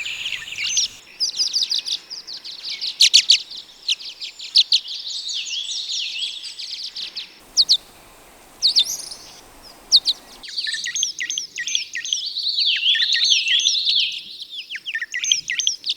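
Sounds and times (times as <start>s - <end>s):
swallows twittering: 0.0s - 1.0s, 7.4s - 10.4s.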